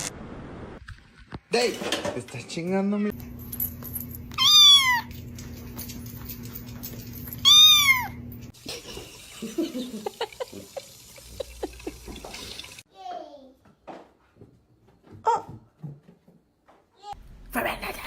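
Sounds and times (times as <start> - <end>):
cat meowing: 4.4 - 5.1, 7.4 - 8.2.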